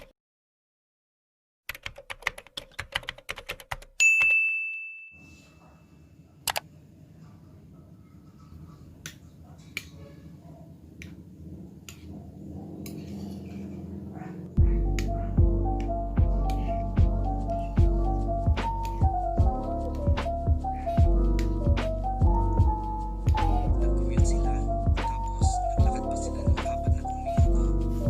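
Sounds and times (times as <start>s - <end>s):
bright ding: 4.0s - 5.3s.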